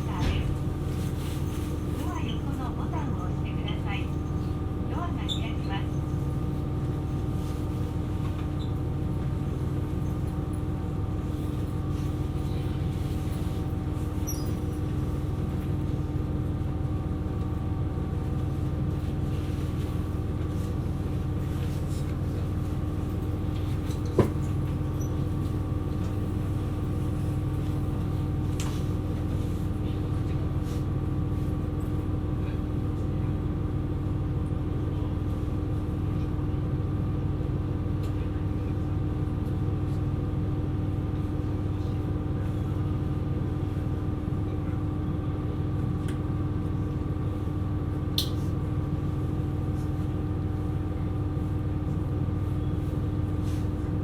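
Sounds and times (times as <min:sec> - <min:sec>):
railcar running rumble: 0:00.0 - 0:54.0.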